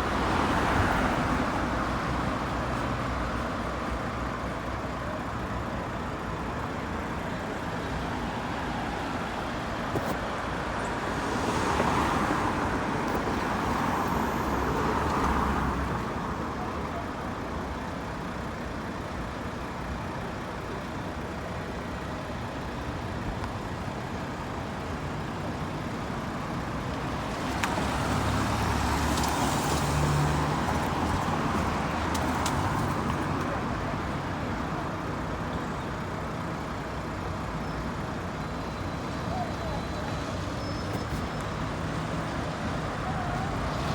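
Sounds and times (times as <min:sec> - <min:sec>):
engine rumble: 0:00.0 - 0:43.9
vehicles passing close: 0:00.0 - 0:43.9
tyres hissing on road: 0:07.6 - 0:16.4, 0:25.3 - 0:43.9.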